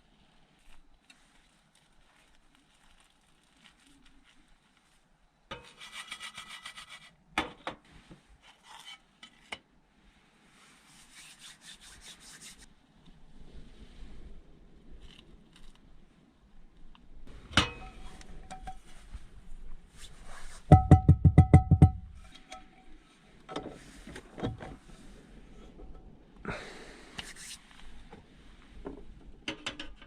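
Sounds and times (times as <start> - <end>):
sharp knock: 20.7 - 22.1.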